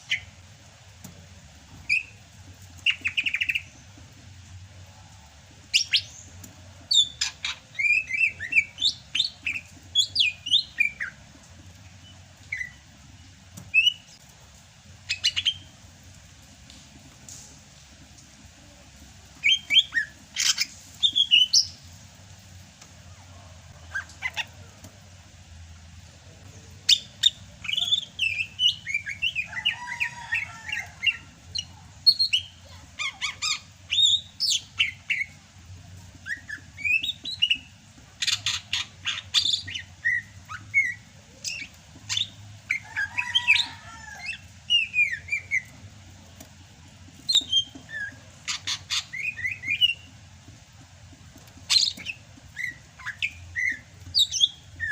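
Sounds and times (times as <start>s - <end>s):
bird singing: 36.2s - 45.8s, 47.2s - 50.1s, 51.7s - 54.9s.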